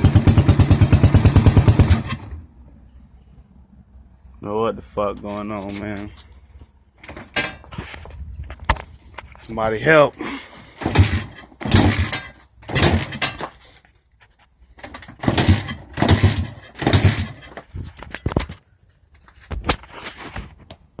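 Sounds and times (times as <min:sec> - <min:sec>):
motorcycle engine kick-started: 0:00.0 - 0:02.5, 0:10.8 - 0:13.5, 0:14.8 - 0:17.7.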